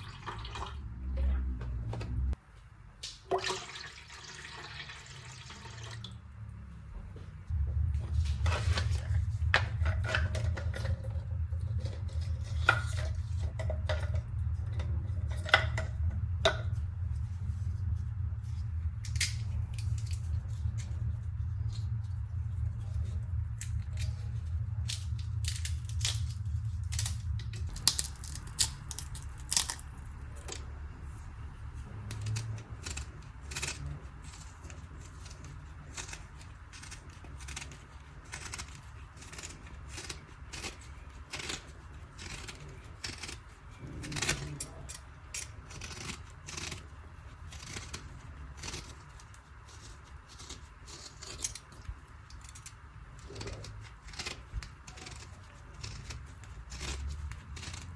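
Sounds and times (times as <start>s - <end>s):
low hum: 6.0s - 40.0s.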